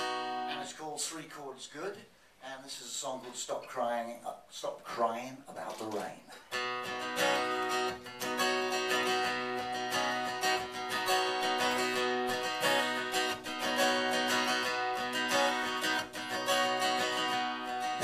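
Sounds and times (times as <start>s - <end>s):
acoustic guitar strumming: 0.0s - 0.7s, 5.9s - 18.0s.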